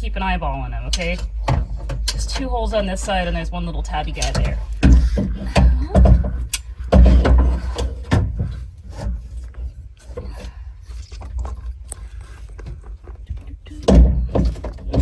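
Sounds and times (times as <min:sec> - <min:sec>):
metal knocking and scraping: 0:00.8 - 0:15.0.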